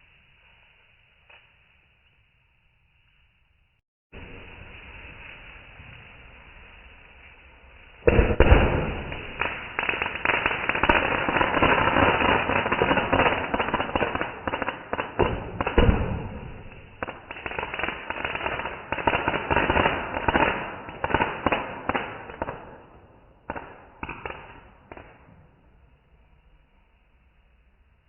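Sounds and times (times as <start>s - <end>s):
fireworks bangs and crackle: 4.2s - 26.2s.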